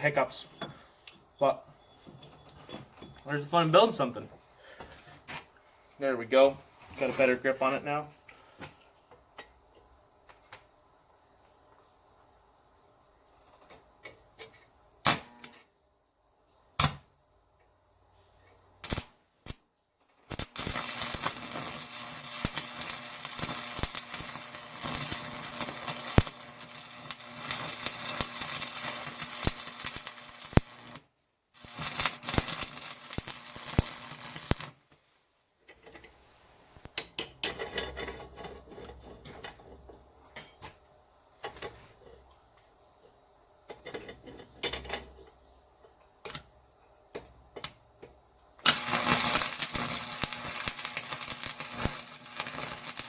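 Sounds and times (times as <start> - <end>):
electric arc welder crackling: 15.1 - 15.6, 18.8 - 19.6, 20.3 - 34.9, 48.6 - 53.0.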